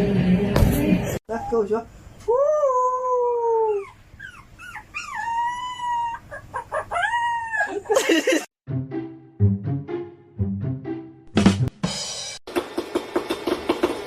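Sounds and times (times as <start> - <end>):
dog yelping: 3.4 - 8.0
dog howling: 4.7 - 7.9
music with drum beat: 11.3 - 14.0.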